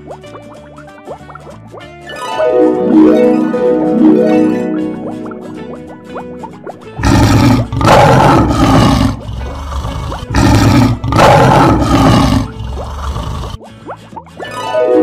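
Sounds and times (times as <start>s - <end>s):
cartoon lion roar: 7.0s - 13.6s.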